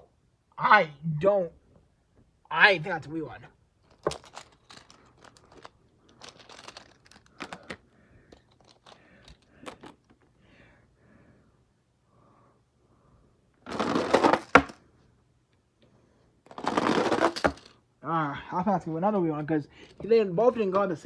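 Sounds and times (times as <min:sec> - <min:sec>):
toy trucks rattling down plastic track: 0:03.8 - 0:10.2, 0:13.7 - 0:14.8, 0:16.5 - 0:17.8
plastic toys clicking and rustling: 0:03.8 - 0:10.3, 0:13.7 - 0:14.8, 0:16.5 - 0:17.8.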